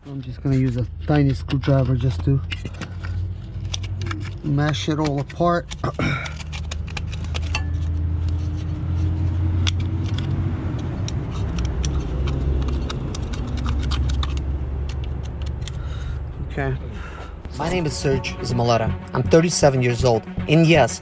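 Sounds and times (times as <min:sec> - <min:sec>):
screwdriver scraping metal: 0:06.3 - 0:08.6
low hum: 0:07.0 - 0:20.6.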